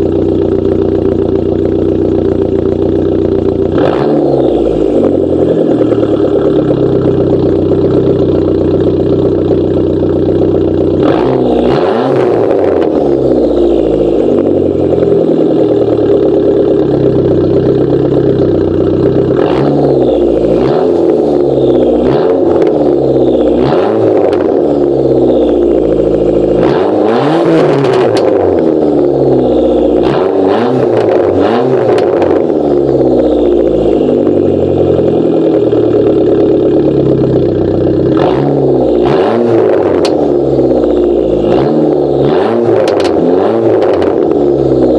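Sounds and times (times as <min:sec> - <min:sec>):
car engine idling and revving: 0:00.0 - 0:44.9
exhaust backfire cracks: 0:25.7 - 0:29.1, 0:42.3 - 0:44.9.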